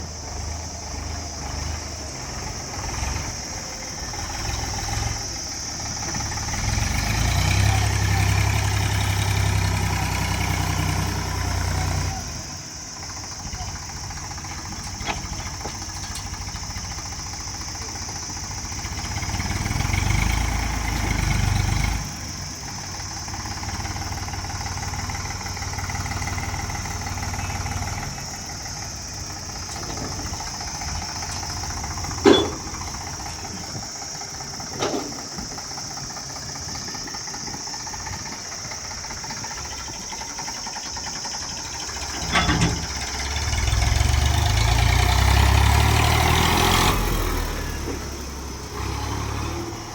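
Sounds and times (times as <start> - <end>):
diesel engine running: 0.0 - 49.9
sharp metallic clanks: 29.6 - 33.6.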